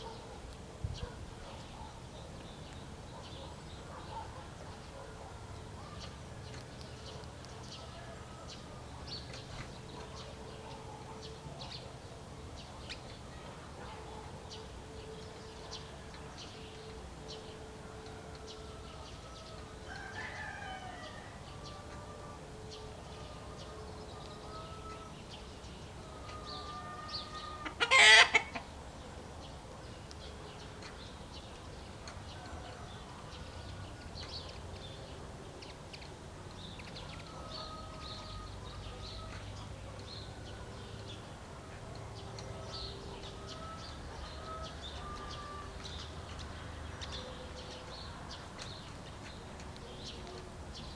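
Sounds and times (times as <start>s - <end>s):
roosters crowing: 18.0s - 25.1s, 26.0s - 28.6s
hens clucking: 27.2s - 28.7s.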